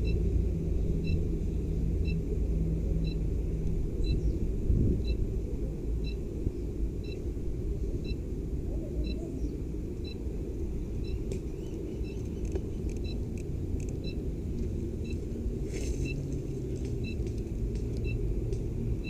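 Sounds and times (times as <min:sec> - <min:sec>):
low microphone rumble: 0:00.0 - 0:19.0
sharp clicks: 0:12.2 - 0:14.1.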